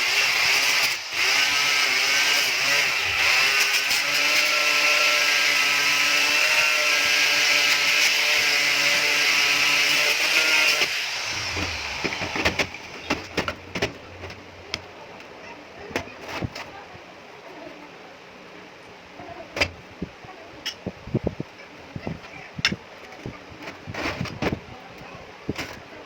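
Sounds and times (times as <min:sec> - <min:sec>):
power tool working metal: 0:00.0 - 0:14.4
sharp knocks: 0:11.4 - 0:14.4.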